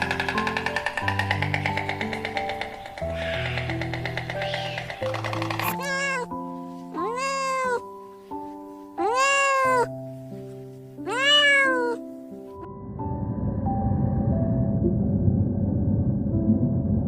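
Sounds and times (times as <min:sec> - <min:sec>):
background music of held notes: 0:00.0 - 0:14.9
cat meowing: 0:05.6 - 0:07.9, 0:09.0 - 0:09.9, 0:11.0 - 0:12.1.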